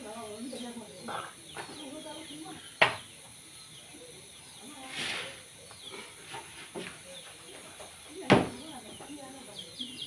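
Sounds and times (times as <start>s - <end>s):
brief hiss: 4.8s - 5.4s.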